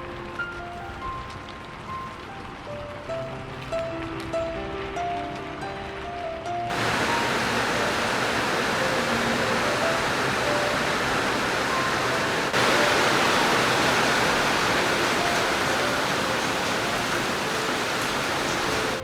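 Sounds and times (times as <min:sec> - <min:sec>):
heavy rain hissing: 0:06.7 - 0:19.0.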